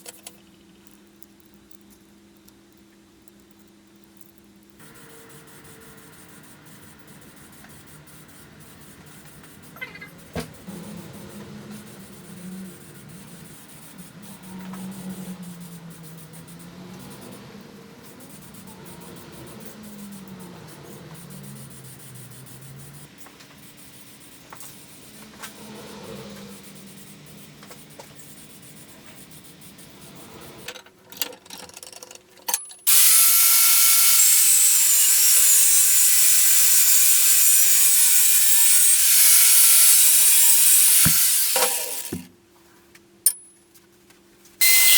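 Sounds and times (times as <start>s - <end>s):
electric power tool running: 32.9s - 42.3s, 44.6s - 44.9s.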